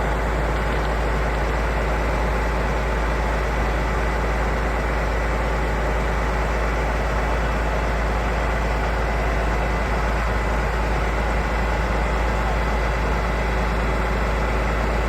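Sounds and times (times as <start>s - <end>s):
heavy vehicle engine rumble: 0.0s - 15.0s.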